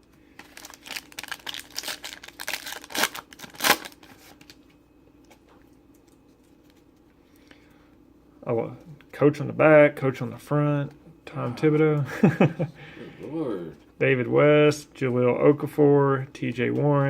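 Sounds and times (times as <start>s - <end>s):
foil pack crinkling: 0.3s - 4.7s.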